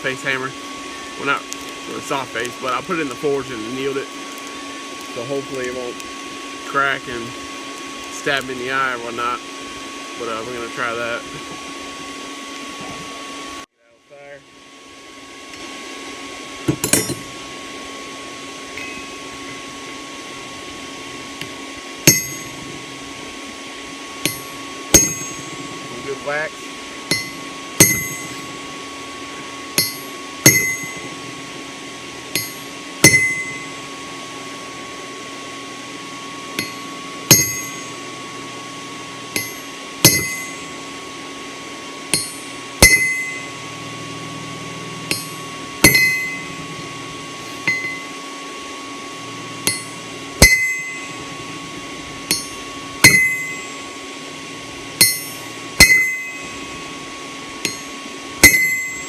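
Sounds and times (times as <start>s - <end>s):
hammer striking hot steel on anvil: 16.7s - 17.3s, 21.4s - 22.6s, 24.2s - 25.6s, 27.1s - 28.6s, 29.7s - 31.1s, 32.3s - 33.8s, 36.6s - 38.0s, 39.3s - 40.8s, 42.1s - 43.7s, 45.0s - 46.6s, 47.5s - 48.2s, 49.6s - 51.2s, 52.2s - 53.8s, 55.0s - 56.7s, 57.6s - 59.0s.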